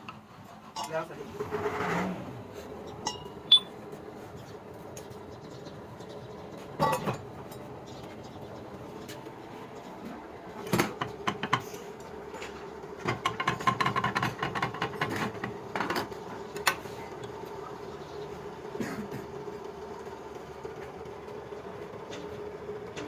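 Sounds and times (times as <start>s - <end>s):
tools clinking on metal: 3.1s - 3.7s.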